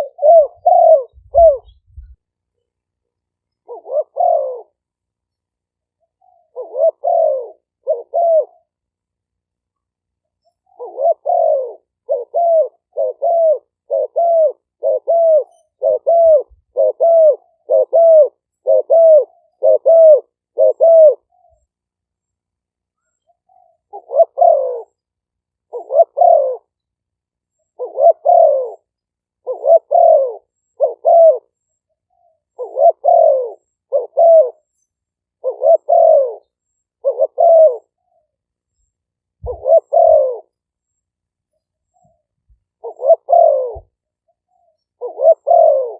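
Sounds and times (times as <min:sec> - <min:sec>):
dove cooing: 0:00.0 - 0:02.2, 0:03.5 - 0:05.0, 0:06.0 - 0:08.8, 0:10.6 - 0:21.6, 0:23.3 - 0:25.0, 0:25.6 - 0:26.8, 0:27.7 - 0:34.7, 0:35.4 - 0:38.3, 0:39.4 - 0:40.6, 0:42.0 - 0:45.9.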